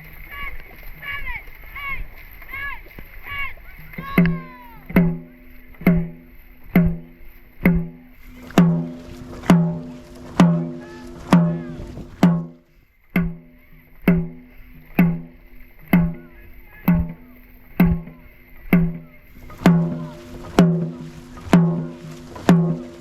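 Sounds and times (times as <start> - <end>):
deep booming drum beat: 4.0 - 12.6, 14.1 - 14.4, 16.0 - 16.3, 16.9 - 18.2, 18.8 - 23.0.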